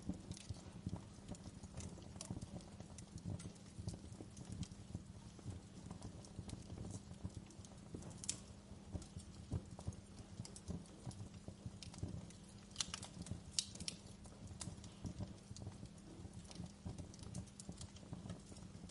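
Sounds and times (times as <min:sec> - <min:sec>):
flames rumbling: 0:00.0 - 0:18.9
wood fire crackling: 0:00.0 - 0:18.9.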